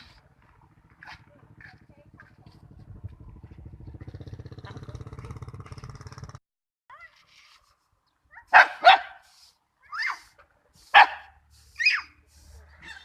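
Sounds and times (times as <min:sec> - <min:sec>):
low pulsing engine: 0:00.0 - 0:06.4
dog barking: 0:08.4 - 0:09.2, 0:10.9 - 0:11.4.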